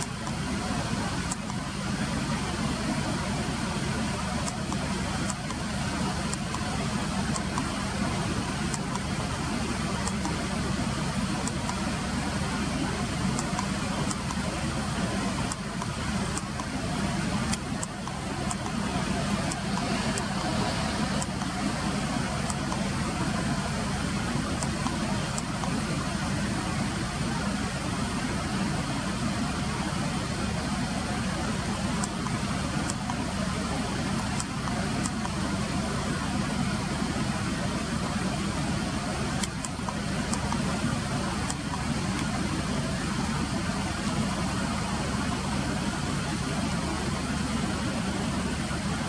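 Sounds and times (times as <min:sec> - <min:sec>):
faint high-pitched ticks: 0:00.0 - 0:01.7, 0:04.0 - 0:09.3, 0:12.8 - 0:14.6, 0:15.2 - 0:23.0
road traffic rumble: 0:00.0 - 0:49.0.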